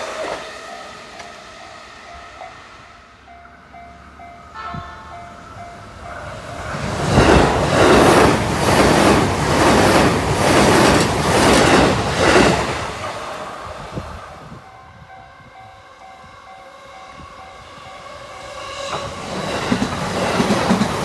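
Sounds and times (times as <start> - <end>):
electric train passing: 0.0 - 21.0
level crossing warning bell: 0.6 - 6.8, 14.6 - 18.6.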